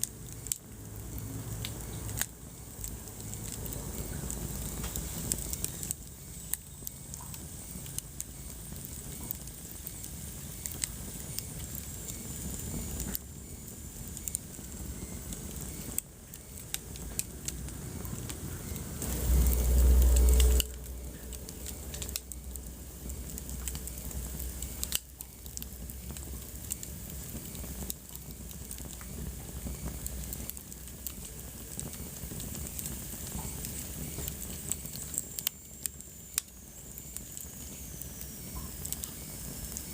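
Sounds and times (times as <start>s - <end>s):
wood fire crackling: 0.0s - 39.9s
low rumble: 17.1s - 26.6s.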